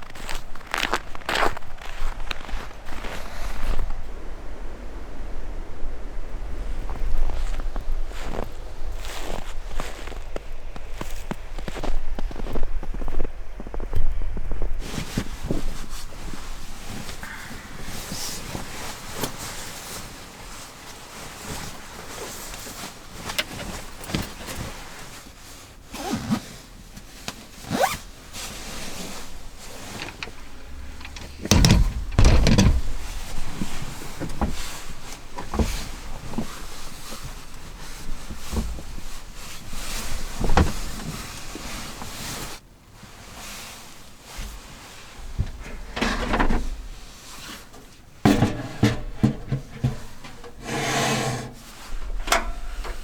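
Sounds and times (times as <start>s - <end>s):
knocks and rustling inside a car: 27.3s - 42.6s, 44.3s - 50.6s
heavy low thud: 30.0s - 33.2s.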